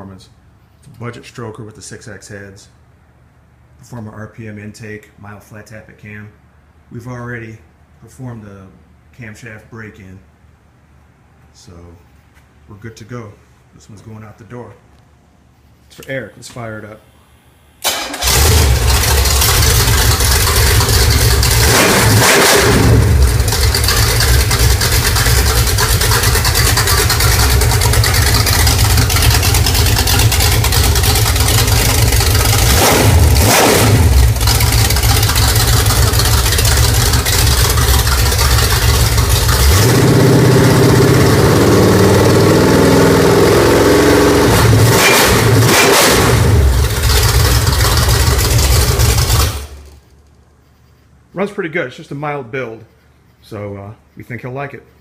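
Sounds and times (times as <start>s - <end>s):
engine throttle blips: 17.2s - 50.0s.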